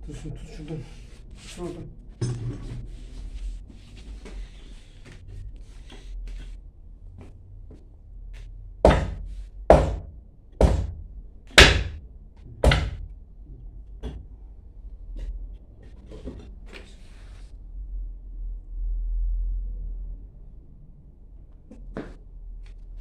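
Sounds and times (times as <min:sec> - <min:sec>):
heavy hammer blows on metal: 0:08.8 - 0:12.0, 0:12.6 - 0:13.1.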